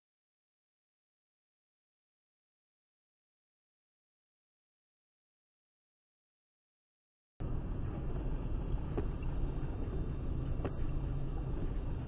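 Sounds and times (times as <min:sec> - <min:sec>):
car engine and road noise: 0:07.4 - 0:12.0.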